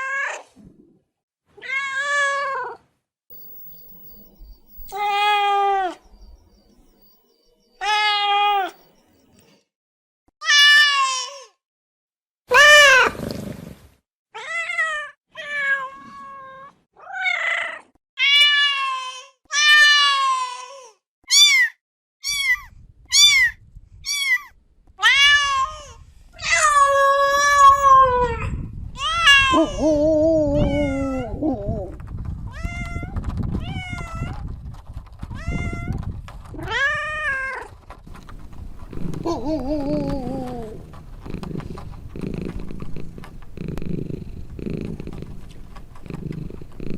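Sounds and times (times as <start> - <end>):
cat meowing: 1.6 - 2.8, 4.9 - 6.0, 21.3 - 28.4, 30.6 - 31.4.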